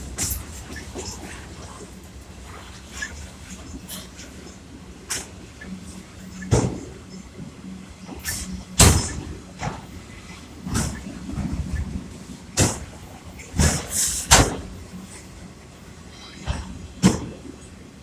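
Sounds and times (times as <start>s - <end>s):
freight train cars rolling: 0.0s - 18.0s
train cars clanking and banging: 0.0s - 18.0s.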